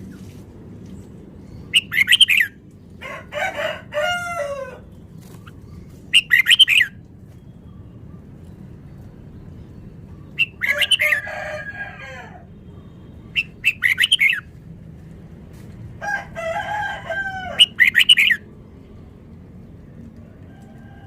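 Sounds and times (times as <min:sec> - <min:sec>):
bird singing whistled phrases: 0:13.3 - 0:14.4.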